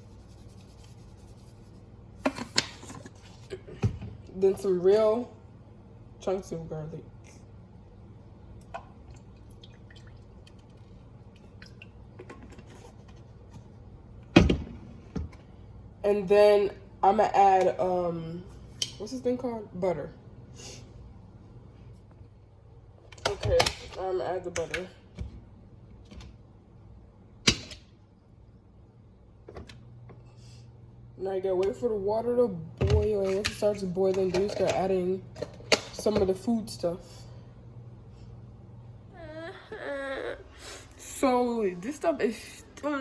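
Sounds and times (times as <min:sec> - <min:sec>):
low steady hum: 0:00.0 - 0:43.0
water drips: 0:08.6 - 0:12.0.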